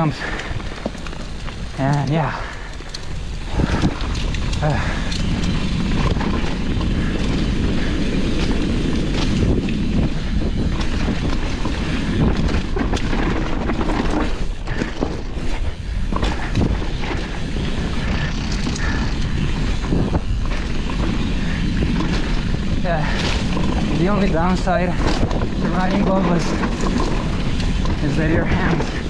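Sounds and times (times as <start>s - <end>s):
wind rushing over microphone: 0.0s - 29.0s
bike tyres rumbling on dirt: 0.1s - 29.0s
bike knocks and clatters: 0.6s - 4.6s.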